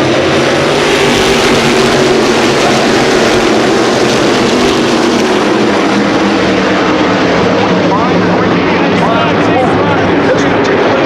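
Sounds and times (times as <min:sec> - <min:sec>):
race car engines roaring: 0:00.0 - 0:11.0.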